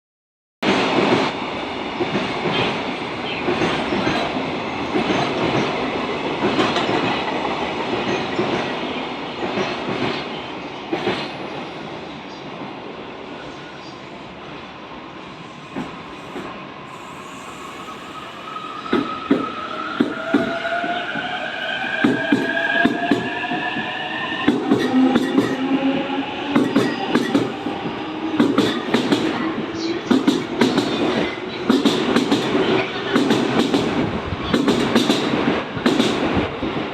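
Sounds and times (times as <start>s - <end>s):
train wheels clicking over rail joints: 28.3s - 29.4s, 30.0s - 36.4s.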